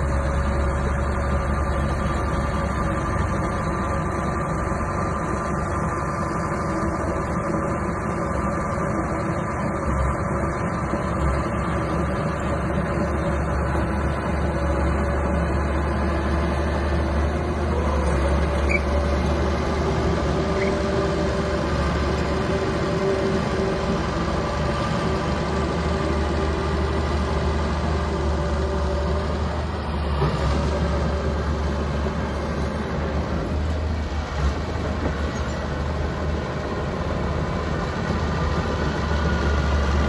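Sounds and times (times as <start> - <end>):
bulldozer diesel engine running: 0.0 - 40.0.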